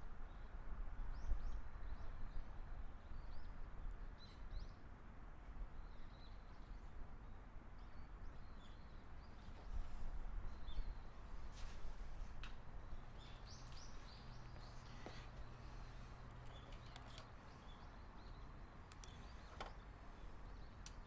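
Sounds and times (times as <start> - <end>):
small birds chirping: 7.8 - 21.0.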